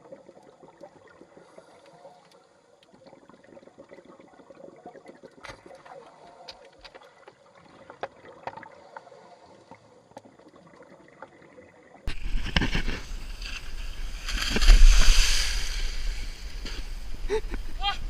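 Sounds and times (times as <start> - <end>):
water sloshing and lapping: 5.0 - 11.4, 12.1 - 17.8
rushing water: 12.0 - 18.0
wind noise: 12.1 - 18.0.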